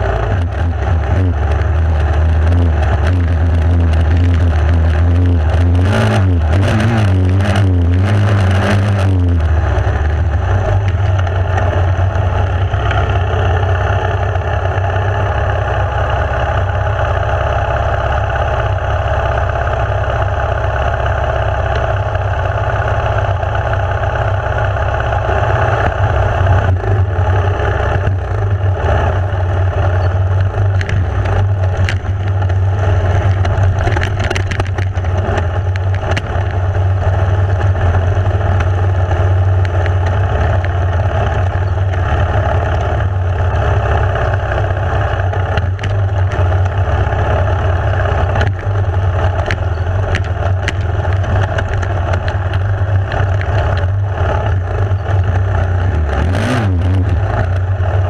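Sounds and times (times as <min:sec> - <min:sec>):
dirt bike engine droning: 0:00.0 - 0:58.0
noisy rush: 0:00.0 - 0:58.0
knocks and rattles: 0:29.9 - 0:38.9, 0:48.2 - 0:56.1.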